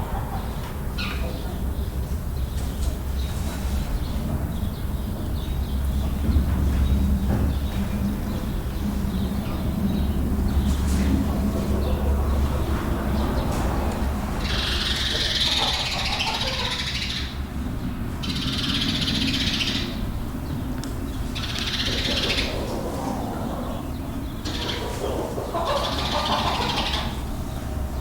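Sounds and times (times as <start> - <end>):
chickens clucking and squawking: 0.0 - 28.0
steady low rumble: 4.2 - 15.9.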